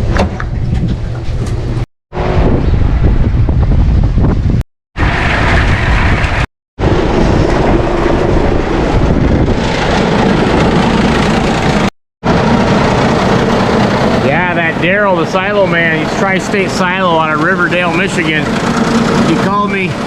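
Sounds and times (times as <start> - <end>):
tractor engine running: 6.9 - 20.0.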